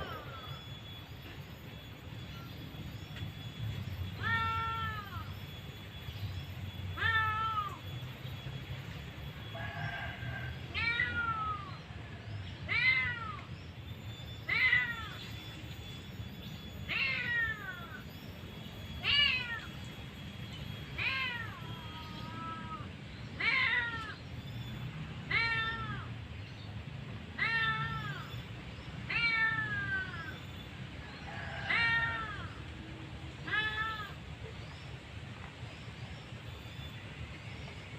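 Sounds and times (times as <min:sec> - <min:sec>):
low steady background rumble: 0:00.0 - 0:37.9
cat meowing: 0:04.2 - 0:05.3, 0:07.0 - 0:07.8, 0:10.8 - 0:11.8, 0:16.9 - 0:18.0, 0:19.0 - 0:19.7, 0:21.0 - 0:22.8, 0:23.4 - 0:24.2, 0:25.3 - 0:26.1, 0:27.4 - 0:28.4, 0:29.1 - 0:30.4, 0:31.4 - 0:32.6, 0:33.4 - 0:34.2.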